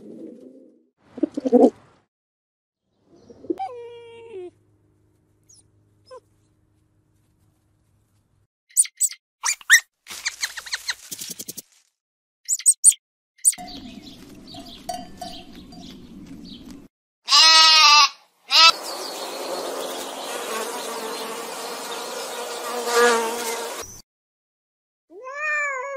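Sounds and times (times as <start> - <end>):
sheep bleating: 17.3 - 18.8
honeybees buzzing: 18.6 - 23.9.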